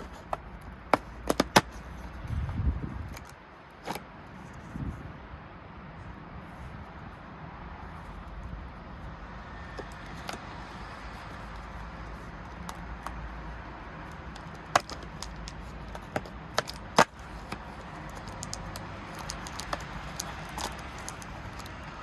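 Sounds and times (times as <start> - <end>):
packaging crackles and clicks: 0.0 - 2.2, 9.6 - 22.0.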